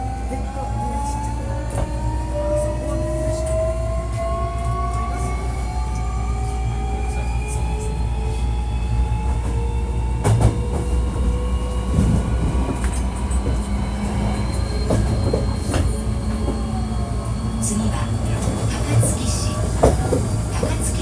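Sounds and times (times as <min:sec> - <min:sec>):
train low rumble: 0:00.0 - 0:21.0.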